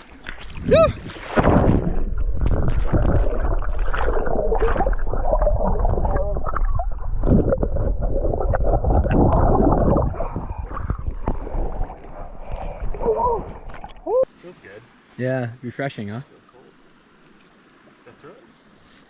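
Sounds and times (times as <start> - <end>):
water splashing and gurgling: 0.0 - 14.3.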